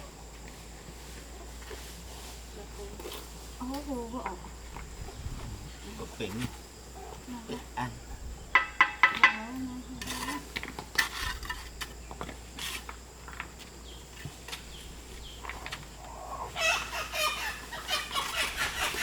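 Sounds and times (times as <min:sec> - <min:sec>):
chickens clucking: 0:04.0 - 0:11.3, 0:14.6 - 0:19.0.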